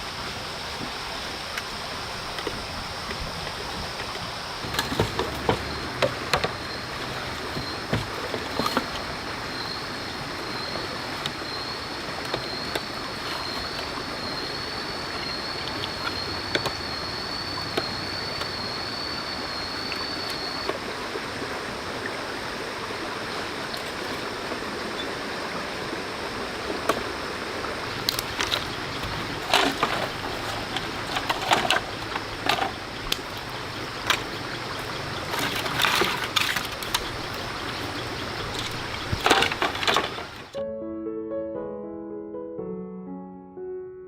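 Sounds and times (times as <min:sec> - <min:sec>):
stream flowing: 0:00.0 - 0:40.6
sharp knocks and clatters: 0:04.6 - 0:09.0.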